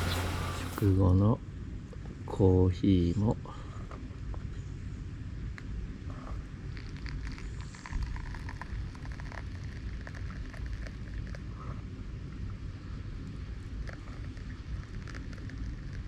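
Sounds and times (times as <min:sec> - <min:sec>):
wood fire crackling: 0:00.0 - 0:01.0.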